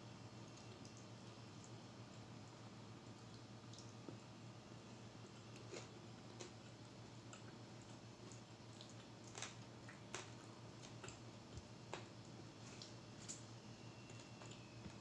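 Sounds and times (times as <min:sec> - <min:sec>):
person chewing: 0:05.5 - 0:06.6.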